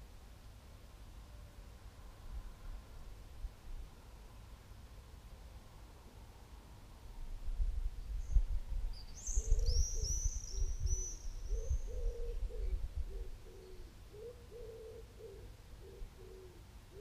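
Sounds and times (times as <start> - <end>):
small bird high chirps: 8.2 - 12.8.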